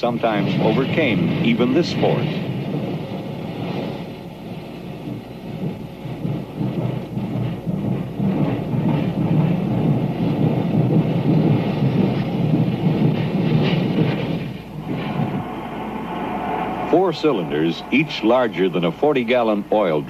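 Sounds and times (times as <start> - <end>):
steam locomotive exhaust roar: 0.0 - 20.0.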